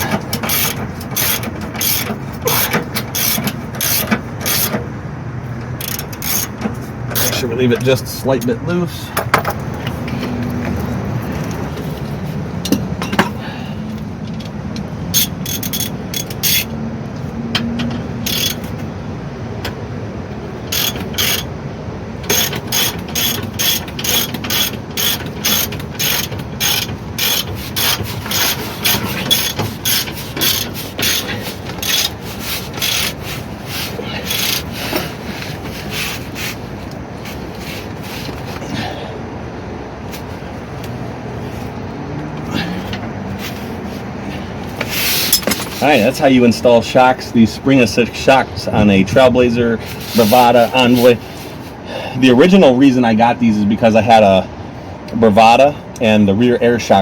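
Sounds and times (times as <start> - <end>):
ratchet wrench clicking: 0.0 - 4.8, 5.6 - 7.4, 14.0 - 16.8, 17.6 - 18.9, 20.6 - 21.6, 22.2 - 37.0.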